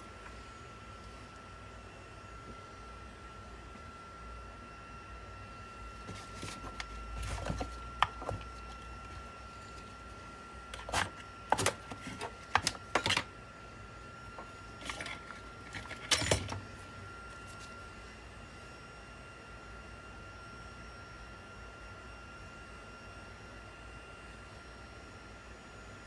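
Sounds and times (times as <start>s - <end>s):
clicks of computer parts handled: 6.1s - 10.0s, 10.7s - 13.3s, 14.4s - 17.8s.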